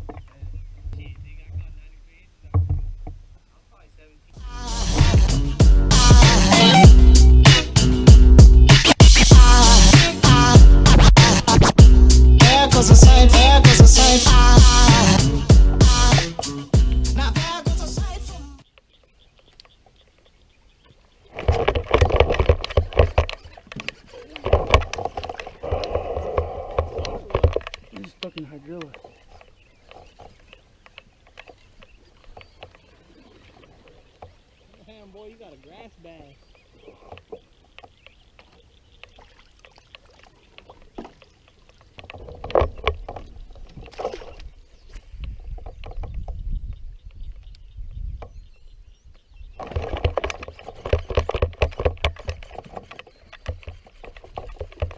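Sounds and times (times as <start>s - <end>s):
knocks and clatter on kayak: 0.0s - 3.4s, 20.8s - 35.8s, 36.8s - 48.5s, 49.1s - 54.9s
low rumble: 4.4s - 11.2s, 11.8s - 16.1s.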